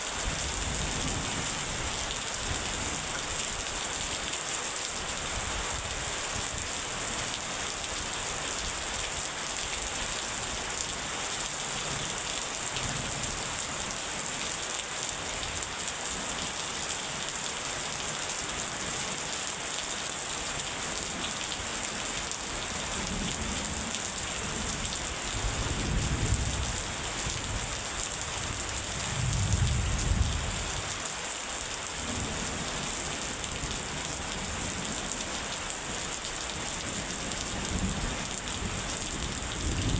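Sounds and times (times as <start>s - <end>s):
rain pouring: 0.0s - 39.9s
thunder rumbling: 29.0s - 30.6s.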